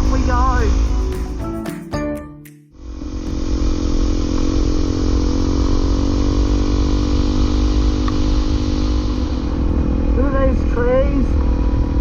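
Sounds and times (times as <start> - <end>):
trail bike engine running: 3.0 - 12.0.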